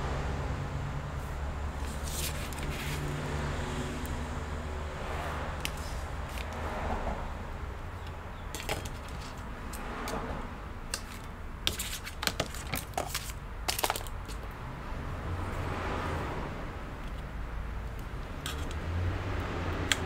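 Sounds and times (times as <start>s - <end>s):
sharp clicks and crackles of tape: 19.7s - 20.0s.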